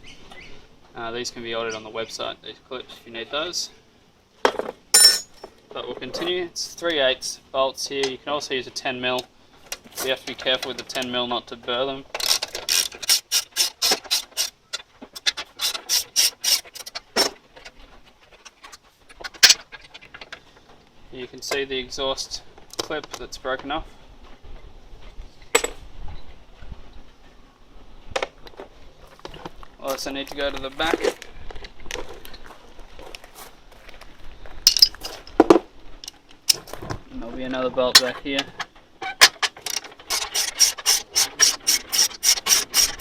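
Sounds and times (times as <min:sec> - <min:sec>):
socket wrench clinking on metal: 0:05.0 - 0:05.4, 0:34.7 - 0:35.0.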